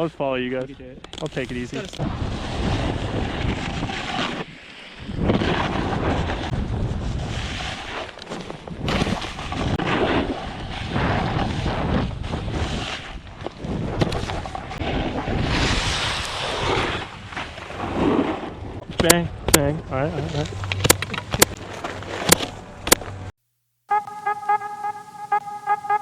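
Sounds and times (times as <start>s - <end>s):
snowboard scraping snow: 1.4s - 18.8s
wind rushing over microphone: 1.5s - 7.8s, 8.7s - 21.5s.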